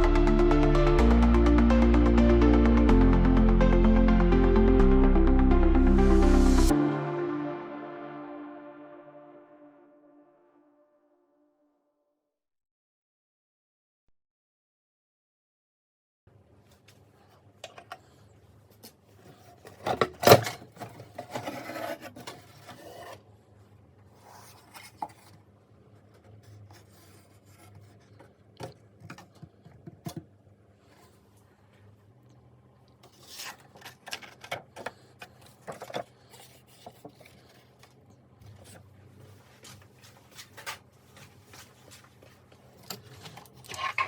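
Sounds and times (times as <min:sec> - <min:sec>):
objects rubbed and scraped: 0:21.0 - 0:23.3, 0:43.1 - 0:44.0.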